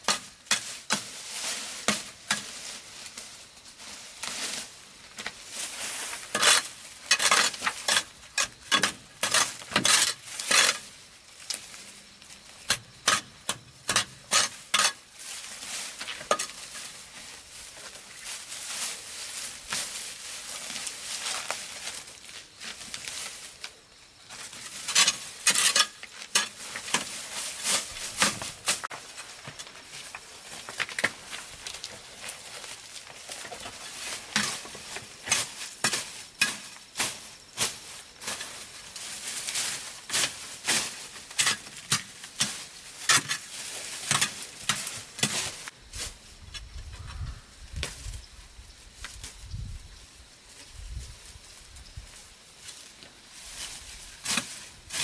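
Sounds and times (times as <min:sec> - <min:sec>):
utensil scraping a cooking pan: 0:05.9 - 0:10.9, 0:13.0 - 0:15.0.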